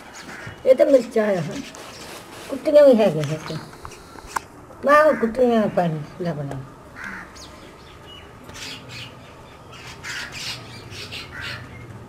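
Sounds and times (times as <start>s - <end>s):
birds squawking: 0.0s - 2.2s, 5.0s - 6.1s, 6.9s - 11.9s.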